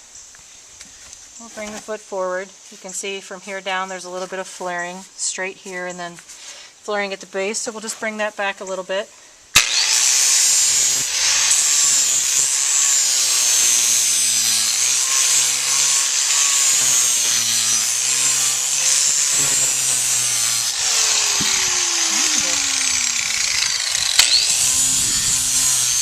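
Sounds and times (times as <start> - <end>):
power grinder grinding hoof: 9.6 - 26.0.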